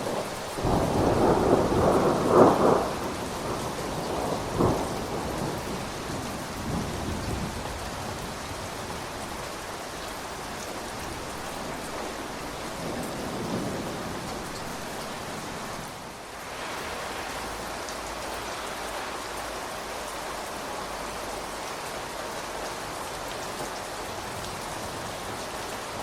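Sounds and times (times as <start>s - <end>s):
thunderclap rumble: 0.0s - 8.5s
steady rain: 0.0s - 26.0s.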